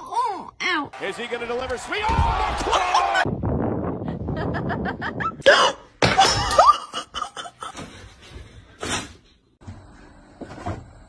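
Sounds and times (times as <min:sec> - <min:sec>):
person laughing: 0:04.1 - 0:07.8.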